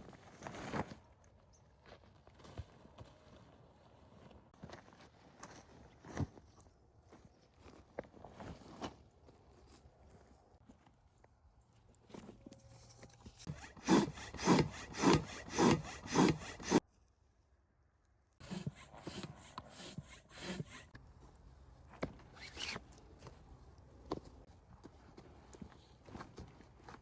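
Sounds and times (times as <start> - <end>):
hand saw cutting wood: 12.8 - 16.8, 18.4 - 21.0
wood rubbing and knocking: 13.4 - 16.8.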